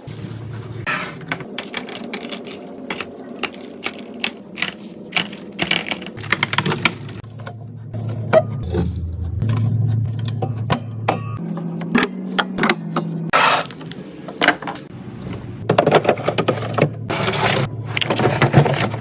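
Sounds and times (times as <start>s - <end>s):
low steady hum: 0.1s - 19.0s
containers clicking and clacking: 1.4s - 9.0s.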